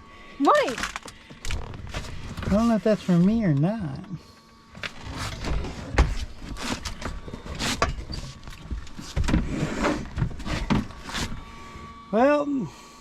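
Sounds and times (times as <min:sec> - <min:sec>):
cabinet parts clunking and knocking: 0:04.8 - 0:11.0.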